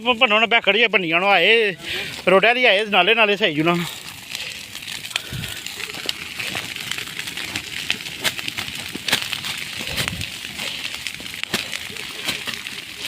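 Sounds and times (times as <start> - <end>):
steady fire hiss: 0.0 - 13.0
wildfire crackling and popping: 0.0 - 13.0.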